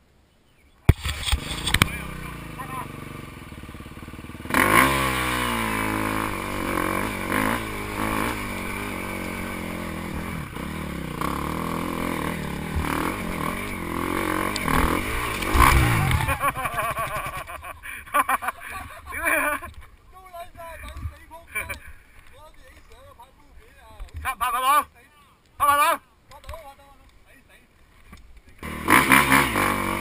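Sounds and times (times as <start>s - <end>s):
dirt bike engine revving: 0.9s - 19.7s, 28.6s - 30.0s.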